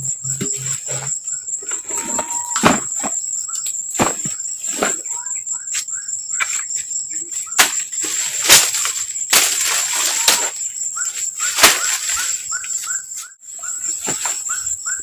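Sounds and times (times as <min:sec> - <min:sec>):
high insect drone: 0:00.0 - 0:15.0
short rising chirps: 0:01.7 - 0:03.0.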